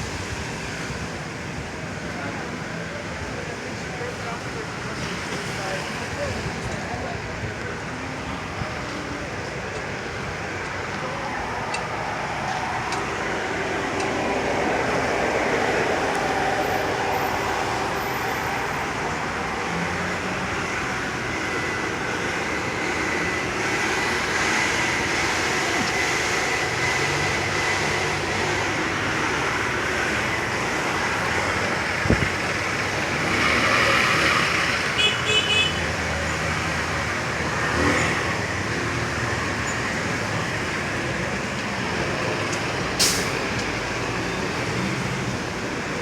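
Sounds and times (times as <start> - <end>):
car tyres on wet pavement: 0.0 - 46.0.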